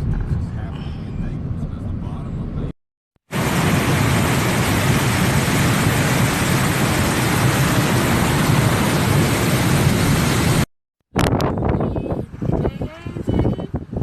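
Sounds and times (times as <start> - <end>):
hurricane wind and rain: 3.3 - 11.4.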